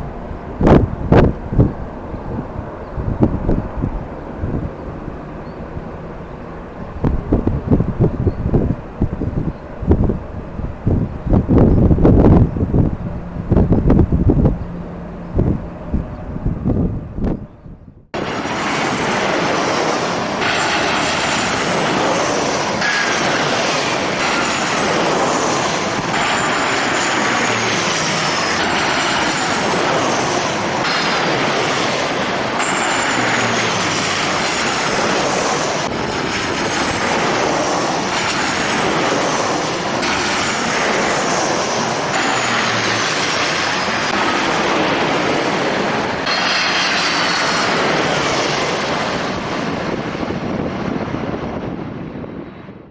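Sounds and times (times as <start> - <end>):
high whines sliding down: 0.0 - 36.0
jet engine rush: 0.0 - 52.9.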